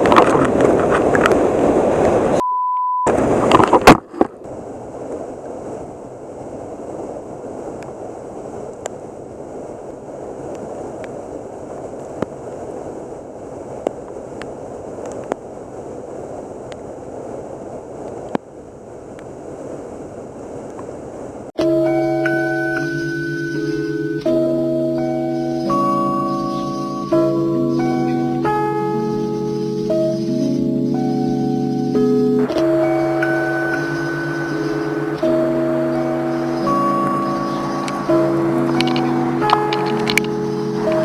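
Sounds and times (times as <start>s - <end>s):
censor bleep: 2.4s - 3.1s
river water rushing: 21.6s - 41.0s
sharp ticks: 25.3s - 41.0s.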